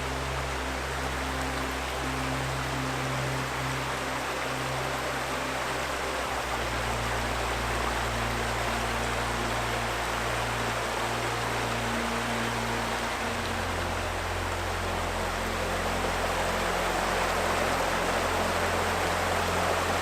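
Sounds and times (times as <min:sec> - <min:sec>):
river flowing: 0:00.0 - 0:20.0
soft relaxing music: 0:00.0 - 0:20.0.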